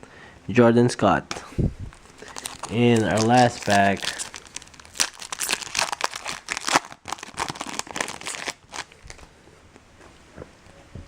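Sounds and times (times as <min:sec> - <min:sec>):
card pack wrapper crinkling: 0:01.9 - 0:09.3.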